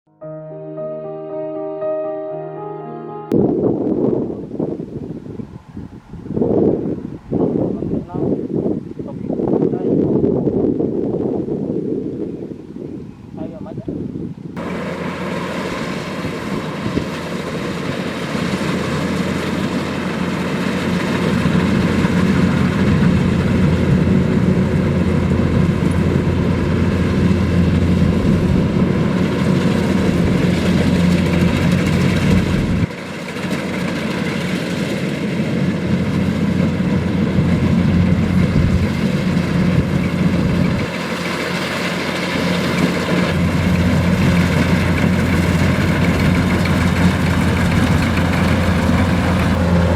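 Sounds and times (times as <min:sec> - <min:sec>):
combine harvester diesel engine running: 0:14.6 - 0:49.9.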